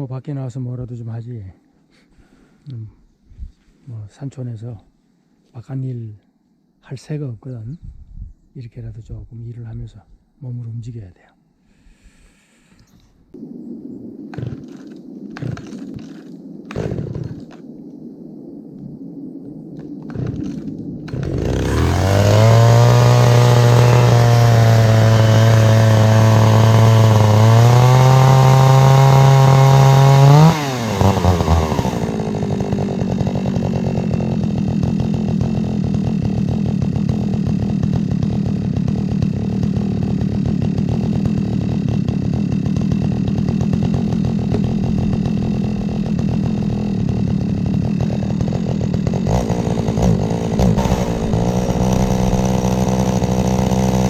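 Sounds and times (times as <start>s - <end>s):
chainsaw engine: 20.1s - 54.0s.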